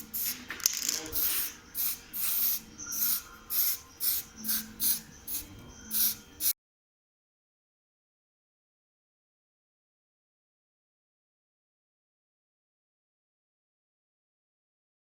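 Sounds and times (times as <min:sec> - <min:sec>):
spray paint can hissing: 0:00.0 - 0:06.6.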